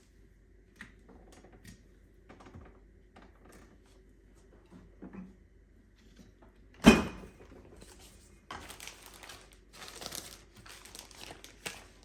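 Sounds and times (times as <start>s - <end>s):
packaging rustling and crinkling: 7.8s - 12.0s.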